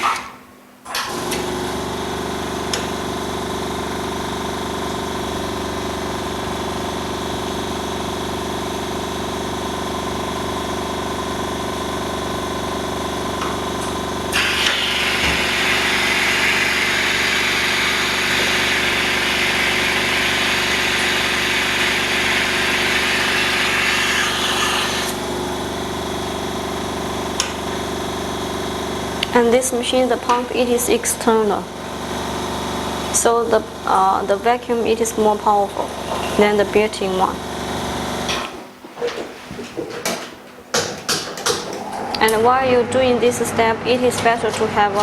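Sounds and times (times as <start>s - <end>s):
vacuum pump humming: 0.0s - 45.0s
loud air hiss: 14.3s - 25.2s.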